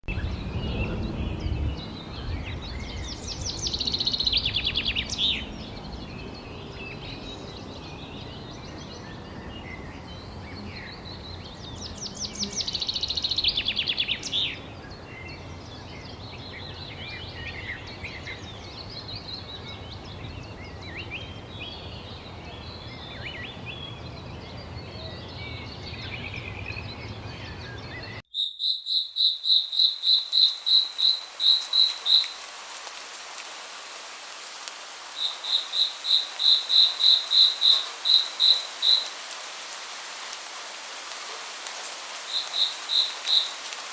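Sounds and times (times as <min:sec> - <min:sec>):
songbirds singing and chirping: 0:00.0 - 0:43.9
falling water hiss: 0:01.8 - 0:09.4, 0:10.0 - 0:27.5, 0:29.4 - 0:43.9
loud rapid bird trills: 0:15.8 - 0:43.9
regular pulsing chirp: 0:22.5 - 0:32.4.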